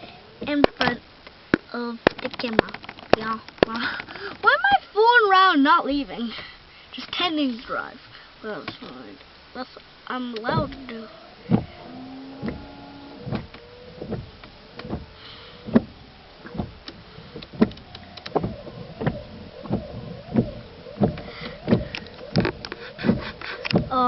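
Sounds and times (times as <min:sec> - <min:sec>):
faint steady hum: 0:00.0 - 0:24.0
sharp knocks: 0:11.5 - 0:24.0.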